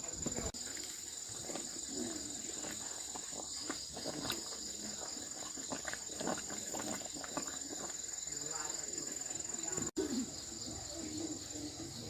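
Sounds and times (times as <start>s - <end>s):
insect chorus: 0.0s - 12.0s.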